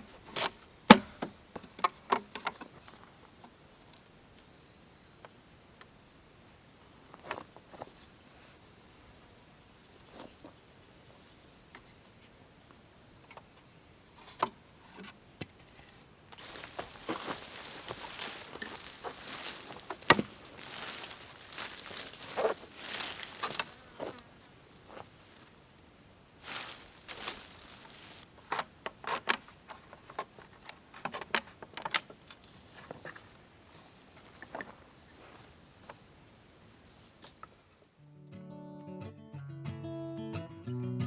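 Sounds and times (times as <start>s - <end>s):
rustling: 15.6s - 36.3s
footstep-like crunches: 15.8s - 36.2s
insect buzzing at high pitch: 16.3s - 28.2s.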